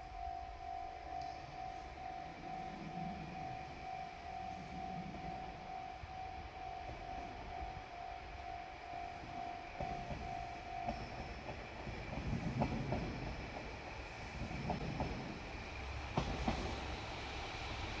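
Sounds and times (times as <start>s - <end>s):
railcar rumbling past: 0.0s - 18.0s
wheels clacking on rail joints: 9.7s - 17.1s.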